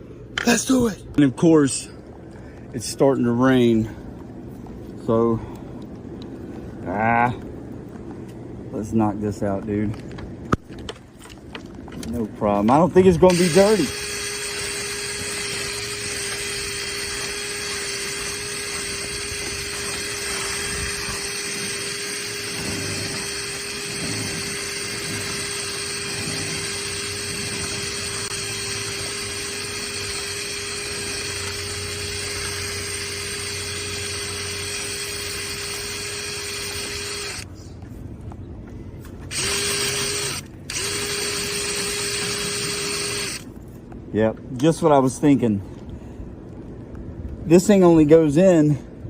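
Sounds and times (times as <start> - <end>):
power tool whining: 12.7 - 37.5, 39.3 - 43.5.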